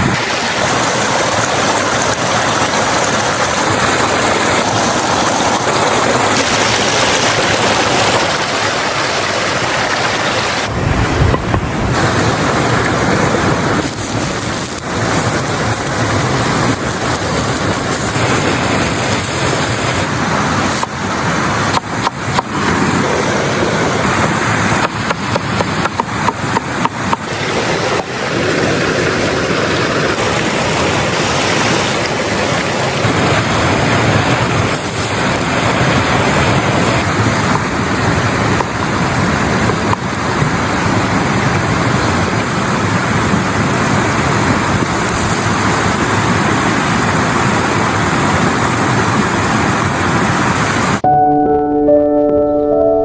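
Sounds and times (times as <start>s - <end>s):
loud steady rushing noise: 0.0s - 51.0s
sustained ringing music notes: 51.0s - 53.0s.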